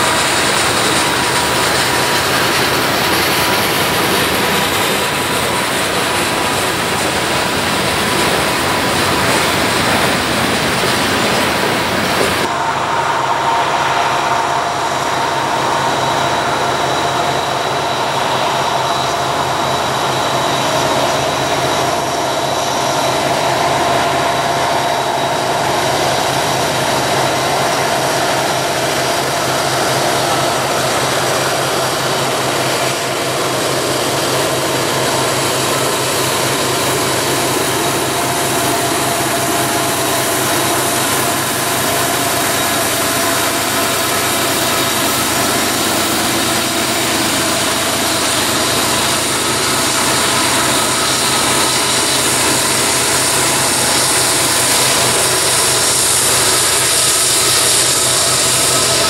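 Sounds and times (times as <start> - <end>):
diesel locomotive drone: 0.0 - 59.0
high whine: 0.0 - 59.0.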